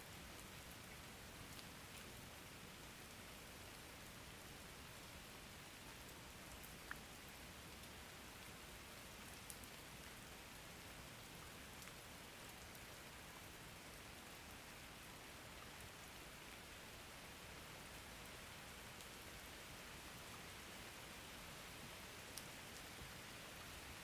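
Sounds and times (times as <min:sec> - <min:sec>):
faint steady rain: 0:00.0 - 0:24.0.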